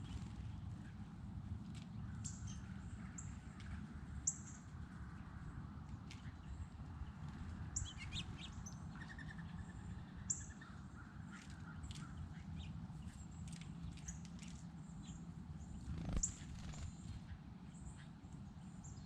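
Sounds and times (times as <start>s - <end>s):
small birds chirping: 0.0s - 1.1s, 6.0s - 19.0s
low outdoor rumble: 0.0s - 19.0s.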